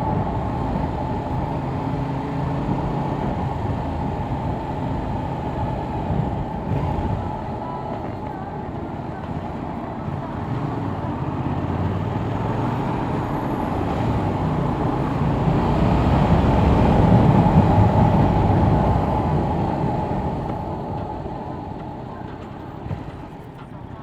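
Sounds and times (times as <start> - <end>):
wind noise rushing: 12.8 - 22.0.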